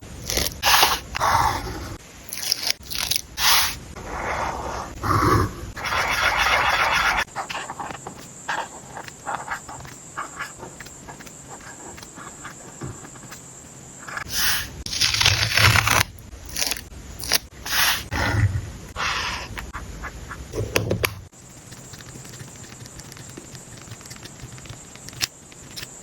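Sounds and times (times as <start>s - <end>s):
light ticks and scratches: 5.8s - 14.3s, 21.5s - 26.0s.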